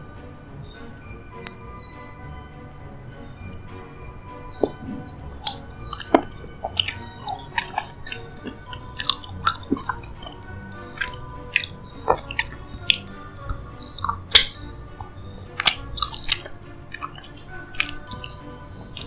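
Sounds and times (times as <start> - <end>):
soft background music: 0.0 - 19.0
wet mouth clicks and smacks: 1.3 - 1.6, 4.6 - 18.4.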